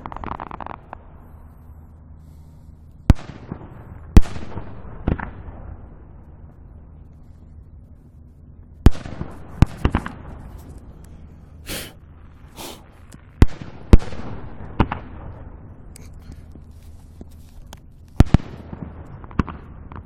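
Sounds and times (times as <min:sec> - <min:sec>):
distant fireworks booming: 0:00.0 - 0:01.4, 0:03.0 - 0:06.5.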